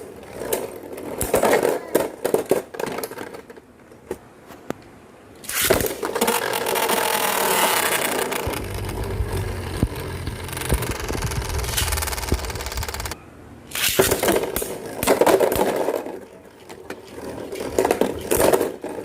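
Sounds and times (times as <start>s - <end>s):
spinning top launcher rip: 5.4s - 15.9s
spinning tops grinding on plastic: 5.5s - 13.2s.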